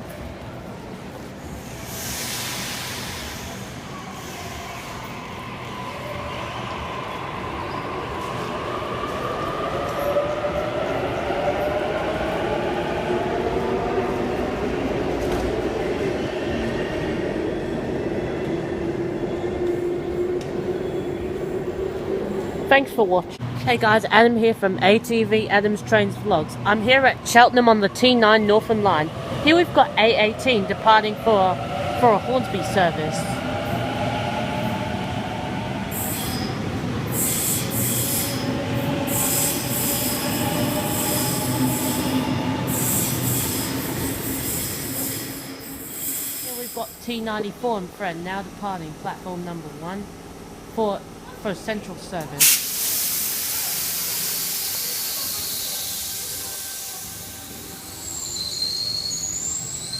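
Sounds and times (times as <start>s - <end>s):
high wheel squeal: 57.8s - 59.9s.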